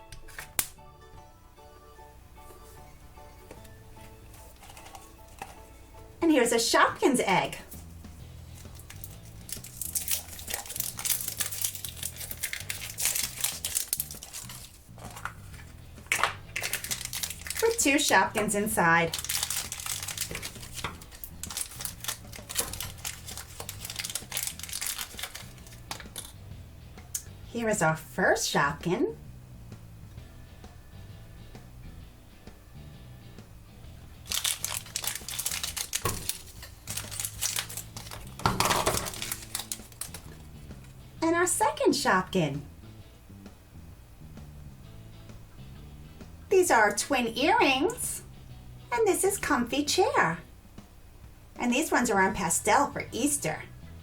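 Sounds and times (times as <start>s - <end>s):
soft background music: 0.0s - 54.0s
wrapper crinkling and tearing: 4.5s - 5.6s, 8.5s - 26.4s, 34.2s - 40.9s.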